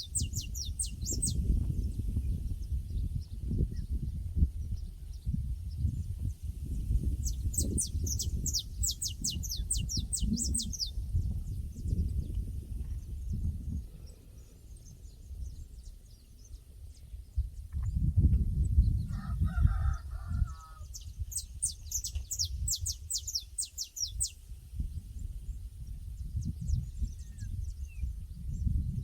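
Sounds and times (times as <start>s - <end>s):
low rumble of wind: 0.0s - 29.0s
rooster crowing: 19.1s - 20.9s.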